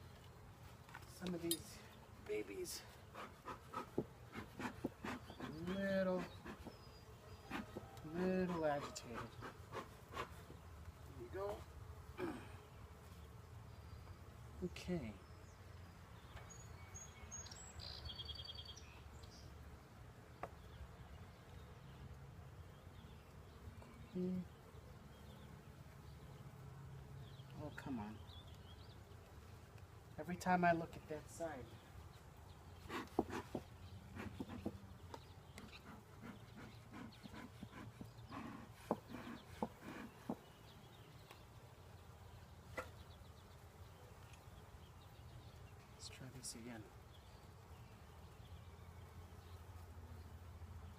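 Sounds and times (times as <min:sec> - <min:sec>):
honeybee colony humming: 0:00.0 - 0:50.9
small bird chirping and trilling: 0:16.2 - 0:19.5.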